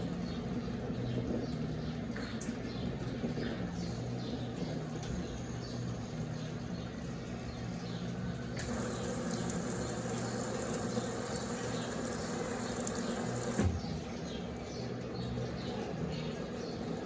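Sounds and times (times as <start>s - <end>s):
water rushing into washing machine: 8.6s - 14.4s.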